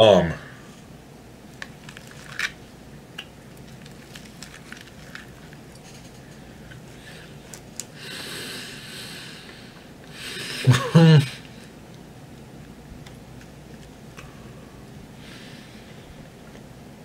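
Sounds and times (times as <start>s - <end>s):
long noisy breath: 6.9s - 10.7s, 14.2s - 16.3s.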